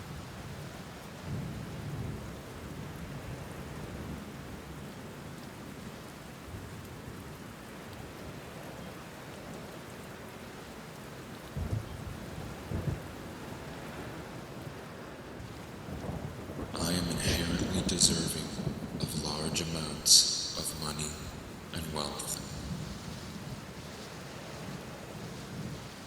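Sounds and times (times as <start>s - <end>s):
steady rain: 0.0s - 26.0s
thunder rumbling: 15.9s - 26.0s.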